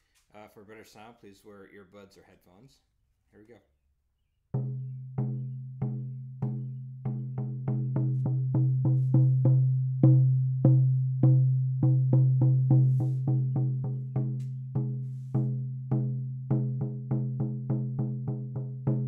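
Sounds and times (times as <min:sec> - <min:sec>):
frame drum beating: 0:04.6 - 0:19.0.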